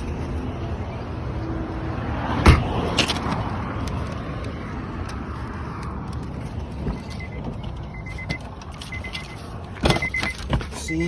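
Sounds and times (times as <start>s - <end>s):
car interior rumble: 2.4s - 11.0s
rapid high warning beep: 6.9s - 11.0s.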